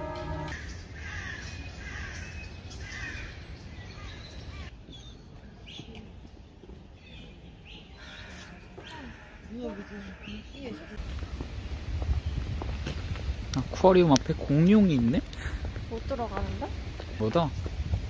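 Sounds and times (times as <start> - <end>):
background music: 0.0 - 0.6
birds calling: 0.0 - 13.4.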